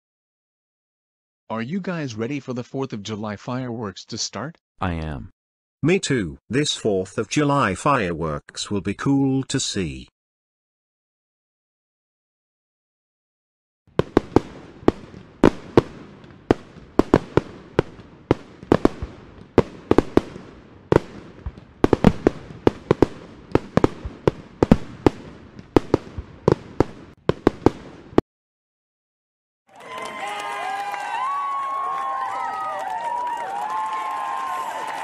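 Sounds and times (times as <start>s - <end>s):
fireworks bangs: 13.9s - 28.2s.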